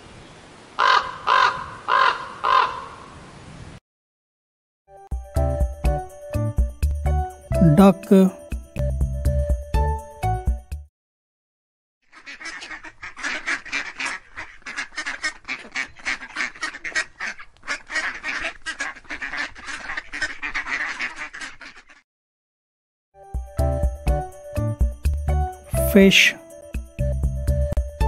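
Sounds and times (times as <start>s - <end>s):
ducks quacking: 12.1s - 22.0s.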